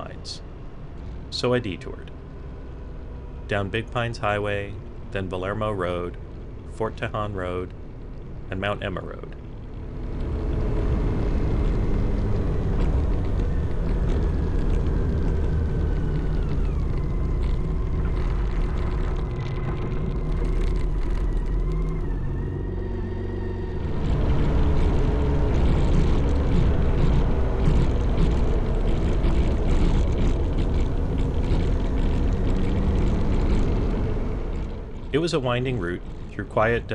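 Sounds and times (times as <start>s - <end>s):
motorcycle engine running: 9.4s - 36.9s.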